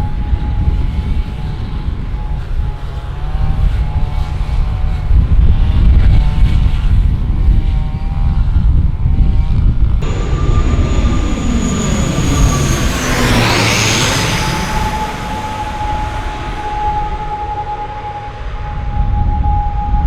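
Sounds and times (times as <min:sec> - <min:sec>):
airliner engines passing overhead: 0:00.0 - 0:20.0
hissing turbine whine: 0:10.0 - 0:20.0.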